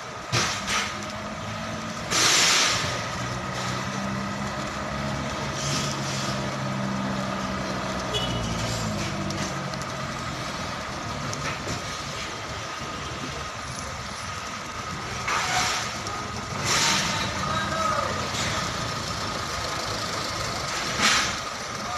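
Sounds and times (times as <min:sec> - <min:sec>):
truck engine running: 0:00.0 - 0:21.9
air brakes hissing: 0:02.1 - 0:03.0, 0:05.4 - 0:06.6, 0:15.3 - 0:17.4, 0:20.8 - 0:21.7.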